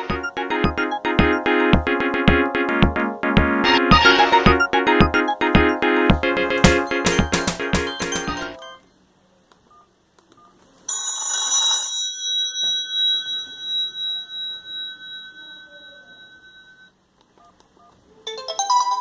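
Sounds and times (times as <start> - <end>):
melodic ringtone of quick notes: 0.0 - 2.1, 3.6 - 8.8
bell-like ringtone strike: 11.0 - 17.0.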